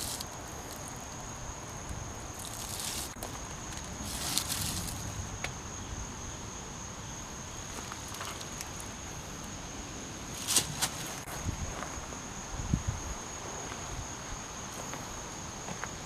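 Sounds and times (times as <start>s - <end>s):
insects trilling: 0.0s - 16.0s
brief scuffing noises: 10.4s - 11.3s.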